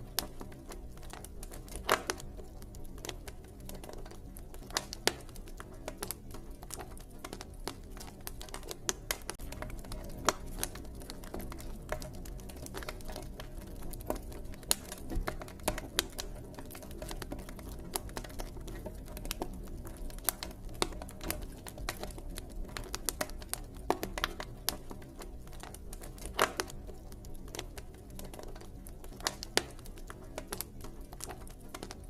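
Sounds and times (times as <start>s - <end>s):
campfire crackling and popping: 0.0s - 32.0s.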